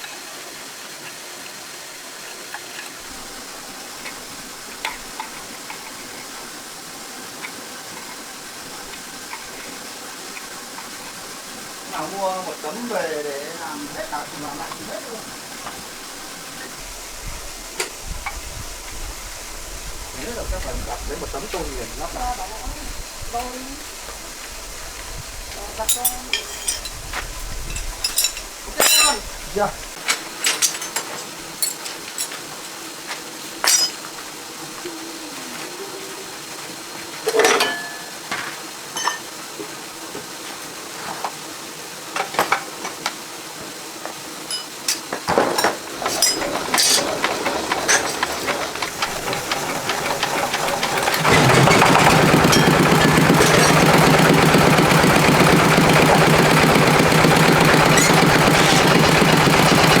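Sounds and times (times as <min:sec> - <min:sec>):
knocks and clinks of work: 0:37.3 - 0:39.3, 0:44.5 - 1:00.0
engine starting and running: 0:45.8 - 1:00.0.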